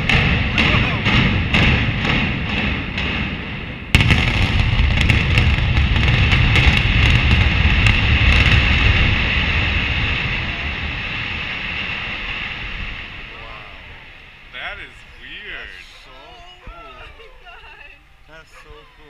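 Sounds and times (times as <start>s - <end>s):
sharp charge cracks: 0.0s - 14.8s
loud boom: 0.0s - 16.0s
deep rumble of collapse: 0.0s - 18.4s.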